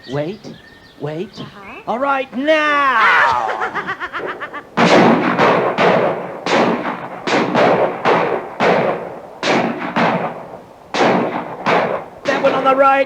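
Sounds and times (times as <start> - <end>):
rapid echoing gunshots: 4.6 - 13.0.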